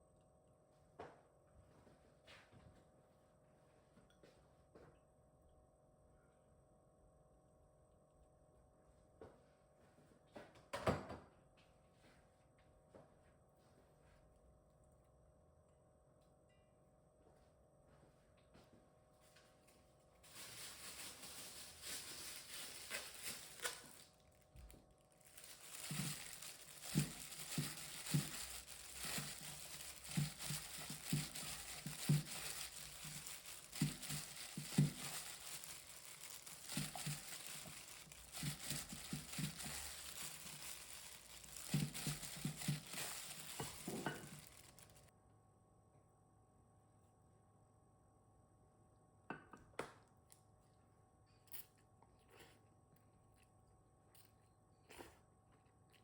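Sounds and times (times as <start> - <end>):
crinkling and rustling: 19.6 - 45.1.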